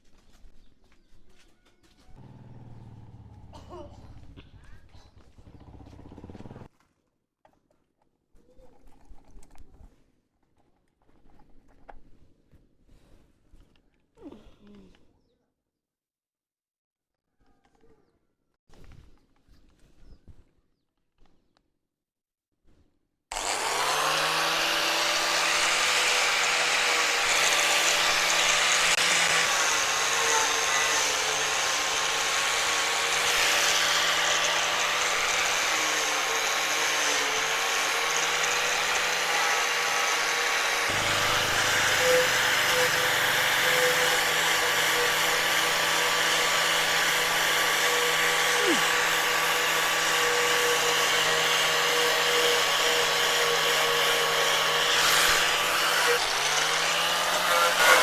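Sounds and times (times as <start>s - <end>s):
electric power tool running: 5.5s - 6.7s, 23.3s - 58.0s.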